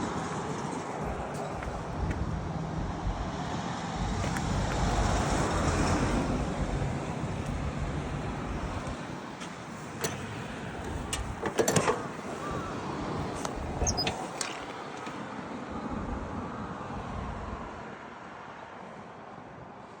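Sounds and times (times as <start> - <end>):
tractor diesel engine running: 0.0 - 14.8.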